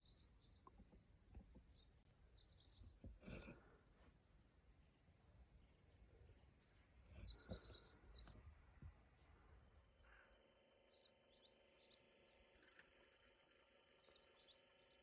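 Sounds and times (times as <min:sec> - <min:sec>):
small birds chirping: 0:00.0 - 0:03.7, 0:05.6 - 0:15.0
faint steady hum: 0:07.8 - 0:15.0.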